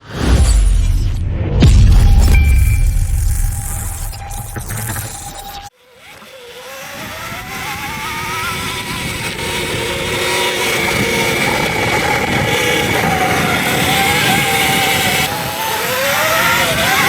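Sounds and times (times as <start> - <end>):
electric motorbike motor whining: 3.3 - 17.0
tyre and wind noise: 6.8 - 17.0.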